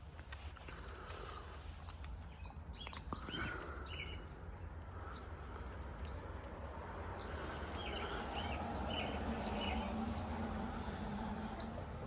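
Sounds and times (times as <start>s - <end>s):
small bird chirping: 0.9s - 4.3s, 5.0s - 5.4s, 6.0s - 6.4s, 7.2s - 10.4s, 11.5s - 11.8s.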